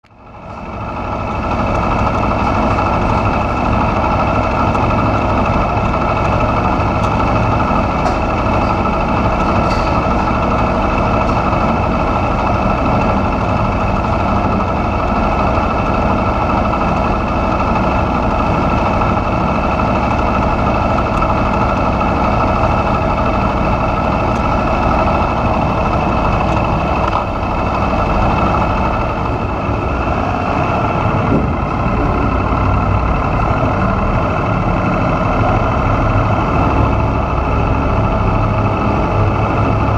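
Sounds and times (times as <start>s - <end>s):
motorcycle engine idling: 0.1s - 39.9s.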